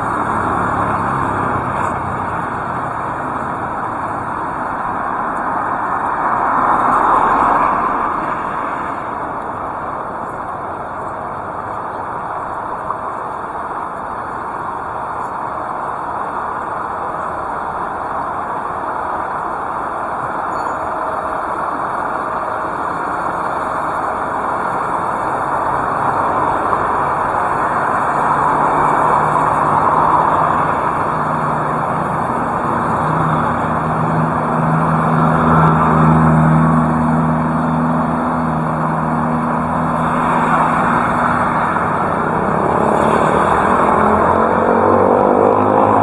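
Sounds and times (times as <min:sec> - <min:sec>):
vehicle engine hum: 0:00.0 - 0:46.0
vehicle engine rising: 0:16.7 - 0:46.0.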